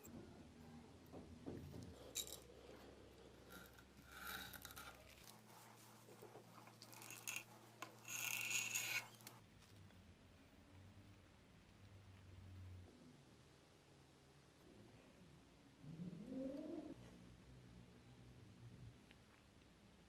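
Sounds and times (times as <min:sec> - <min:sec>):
craft material crinkling and scraping: 0:01.6 - 0:10.0.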